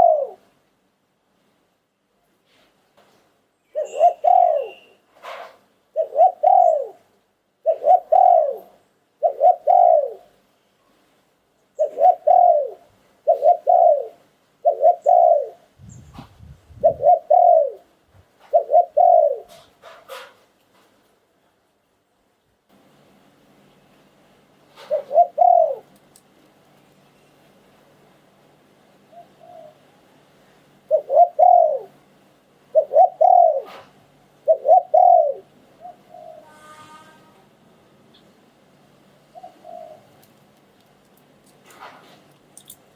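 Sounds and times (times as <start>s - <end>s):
dove cooing: 0.0s - 0.5s, 3.8s - 10.4s, 11.8s - 20.3s, 24.7s - 25.9s, 29.1s - 29.8s, 30.9s - 32.0s, 32.7s - 36.6s, 39.3s - 40.2s.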